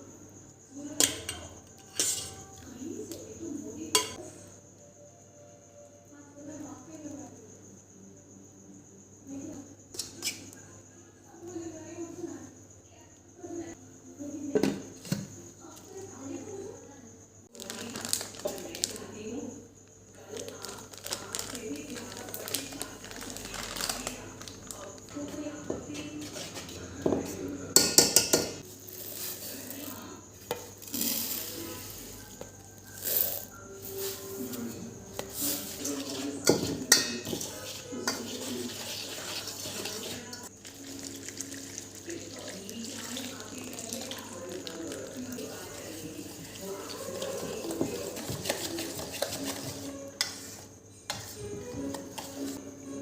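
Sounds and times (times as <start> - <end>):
utensils and dishes clinking: 1.0 - 2.7, 3.9 - 4.2, 25.9 - 42.6, 43.3 - 52.6
low indistinct voices: 41.4 - 50.5.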